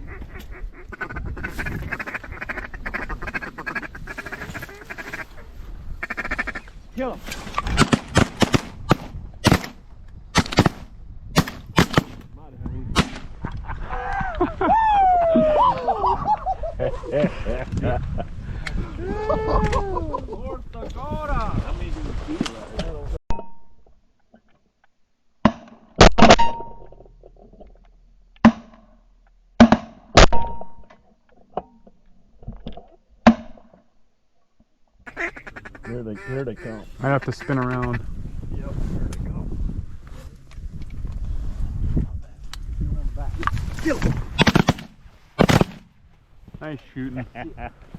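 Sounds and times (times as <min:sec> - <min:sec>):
shotgun shots: 0:07.8 - 0:09.8, 0:10.4 - 0:12.2, 0:13.0 - 0:13.3, 0:44.4 - 0:45.9.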